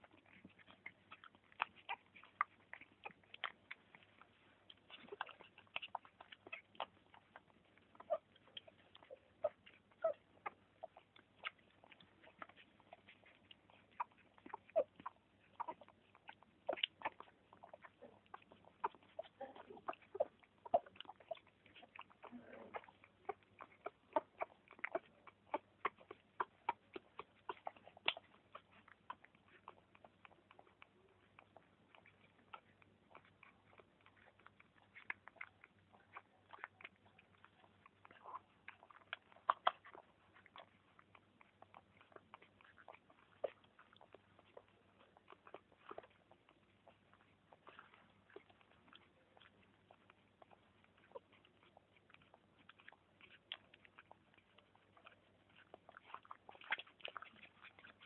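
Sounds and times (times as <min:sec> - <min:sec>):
dogs wet mouth clicks: 0:00.0 - 0:58.0
faint murmur: 0:04.0 - 0:28.0.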